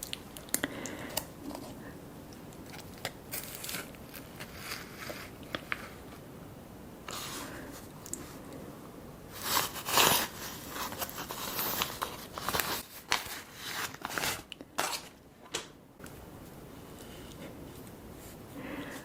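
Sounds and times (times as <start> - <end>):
food packaging tearing and crinkling: 2.6 - 5.9, 9.4 - 15.2.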